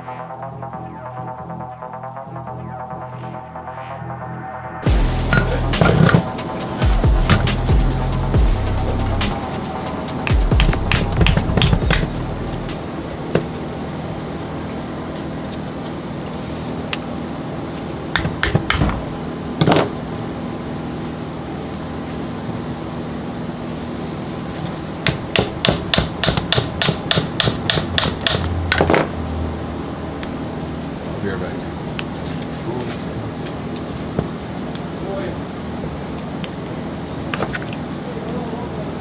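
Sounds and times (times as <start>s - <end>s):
steady hum: 0.0s - 39.0s
hammer striking metal: 4.9s - 7.7s, 25.0s - 29.0s.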